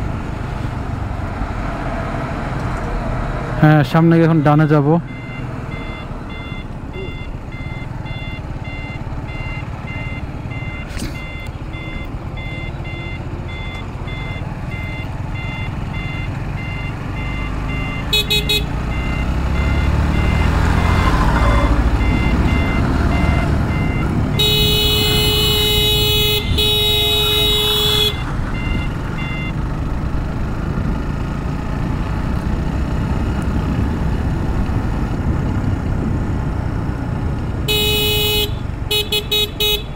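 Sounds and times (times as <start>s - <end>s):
motorcycle running: 0.0s - 39.9s
wind and road noise: 0.0s - 39.9s
turn signal buzzer beeping: 4.2s - 29.7s
horn tooting: 17.3s - 29.5s, 37.6s - 39.9s.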